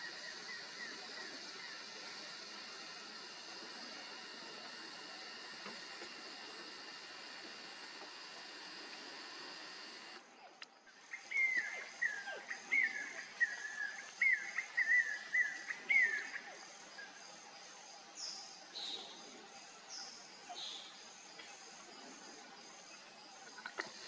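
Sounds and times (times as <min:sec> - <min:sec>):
high insect drone: 0:00.0 - 0:24.0
short whistled falling calls: 0:11.0 - 0:17.1.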